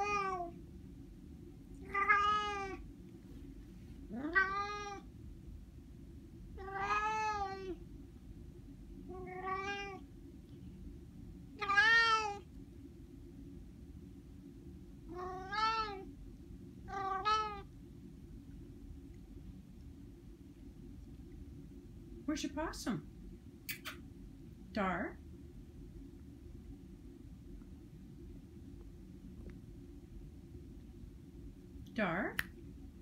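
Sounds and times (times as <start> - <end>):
cat meowing: 0.0 - 0.5, 1.8 - 2.8, 4.1 - 5.0, 6.6 - 7.8, 9.1 - 10.0, 11.6 - 12.4, 15.1 - 16.1, 16.9 - 17.7.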